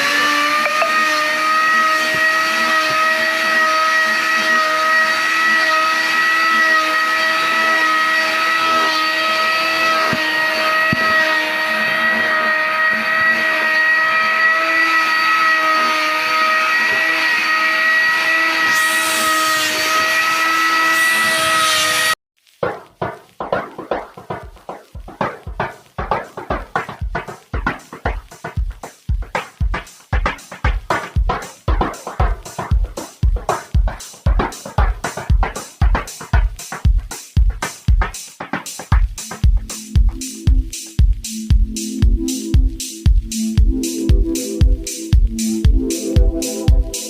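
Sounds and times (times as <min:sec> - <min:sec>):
small electric motor whining: 0:00.0 - 0:22.2.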